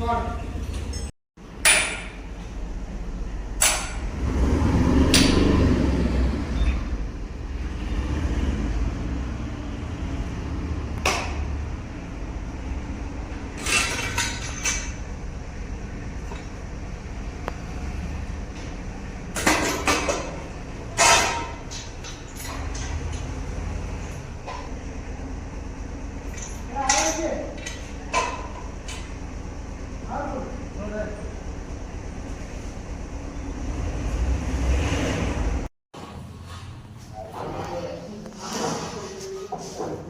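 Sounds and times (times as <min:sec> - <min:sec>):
machine parts knocking and clanking: 0:13.3 - 0:15.1, 0:18.5 - 0:24.7, 0:26.2 - 0:29.3.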